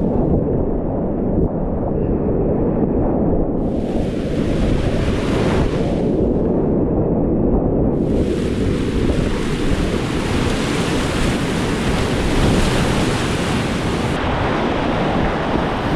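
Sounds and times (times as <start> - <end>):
water splashing: 8.0 - 15.9
whitewater rapids rushing: 8.1 - 15.9.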